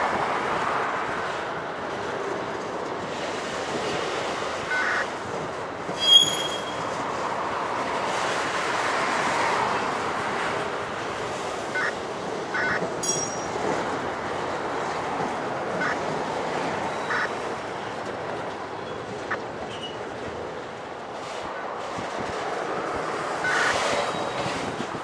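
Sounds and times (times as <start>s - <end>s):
freight train rolling past: 0.0s - 25.0s
high-pitched wheel squeals: 6.0s - 7.0s, 23.4s - 24.7s.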